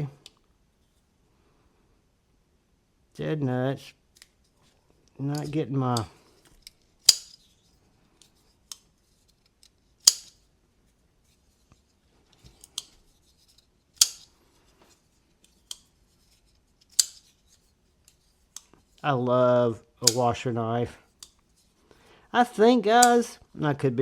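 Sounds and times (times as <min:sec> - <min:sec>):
folding knife snapping open and shut: 0:07.1 - 0:07.4, 0:10.1 - 0:10.4, 0:14.0 - 0:14.3, 0:17.0 - 0:17.2.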